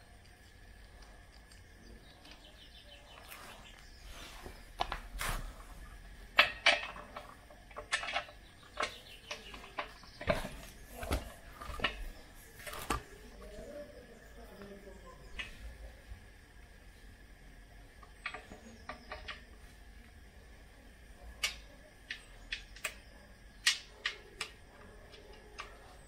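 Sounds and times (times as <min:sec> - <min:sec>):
hard parts clinking and knocking: 0:06.3 - 0:13.1, 0:18.0 - 0:19.5.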